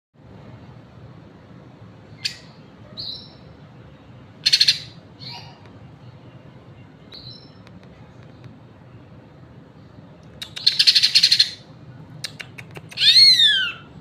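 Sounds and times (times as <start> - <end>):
bird sharp calls: 2.2 - 3.4, 4.4 - 5.6, 10.4 - 14.0.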